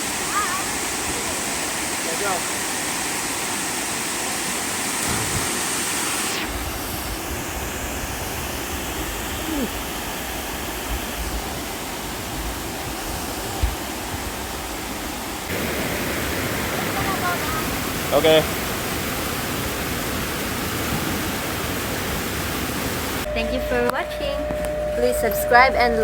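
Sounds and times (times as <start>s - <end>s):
waterfall rushing: 0.0s - 23.3s.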